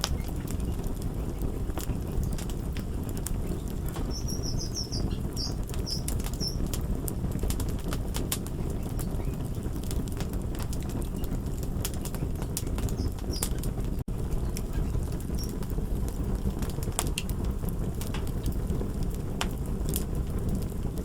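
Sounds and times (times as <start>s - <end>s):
fire crackling and popping: 0.0s - 21.0s
faint high chirps: 3.4s - 6.7s.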